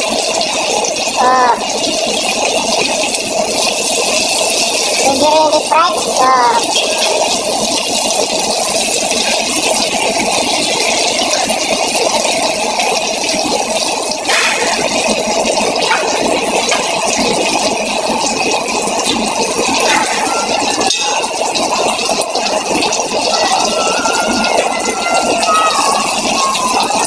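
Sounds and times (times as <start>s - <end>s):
food sizzling in hot oil: 0.0s - 27.0s.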